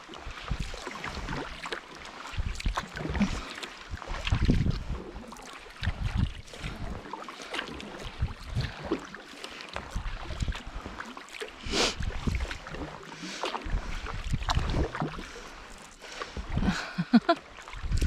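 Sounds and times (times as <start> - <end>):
paddle blades splashing in water: 0.0 - 18.0
wind buffeting microphone: 4.0 - 5.0.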